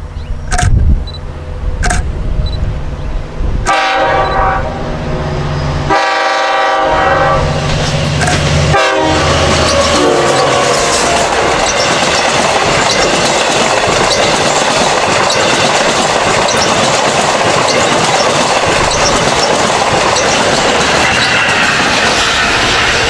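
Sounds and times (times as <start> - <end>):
passenger train rushing past: 0.0 - 23.0
wheels clattering over rail joints: 9.4 - 23.0.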